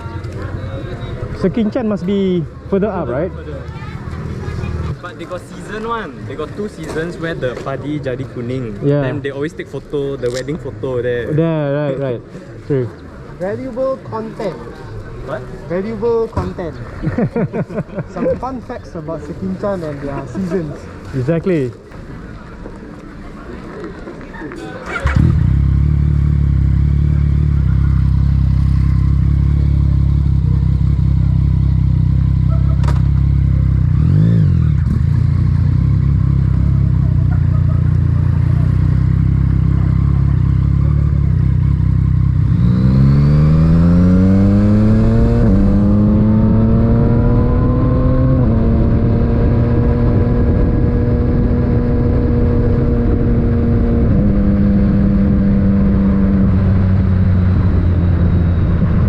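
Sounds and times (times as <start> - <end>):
motorcycle engine running: 24.9 - 59.0.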